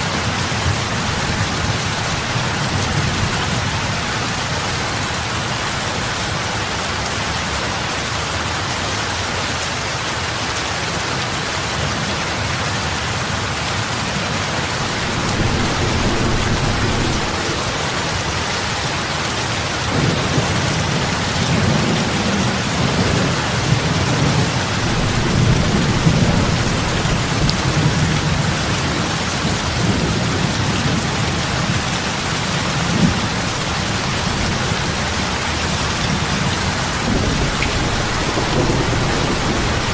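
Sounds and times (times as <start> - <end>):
rain falling on lake water: 0.0 - 39.9
low rumble: 14.7 - 18.4.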